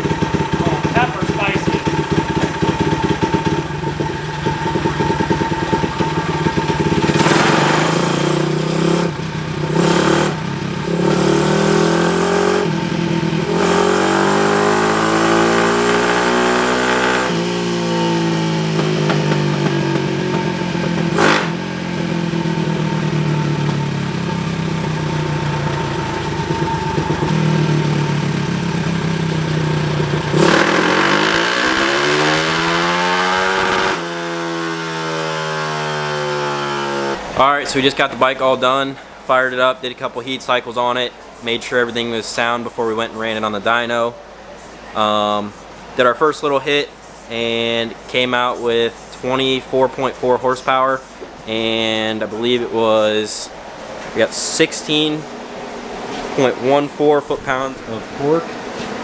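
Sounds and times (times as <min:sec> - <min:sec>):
engine pop: 0:00.0 - 0:10.7
motorbike engine revving: 0:00.0 - 0:37.6.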